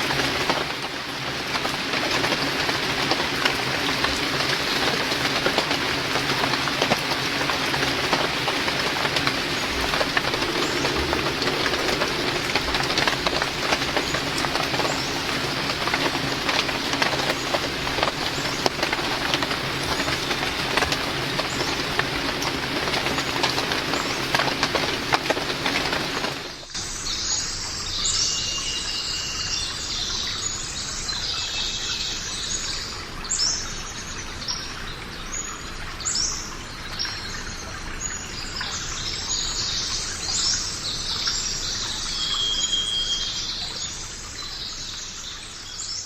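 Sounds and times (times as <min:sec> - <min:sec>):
birds chirping: 0:08.2 - 0:26.4.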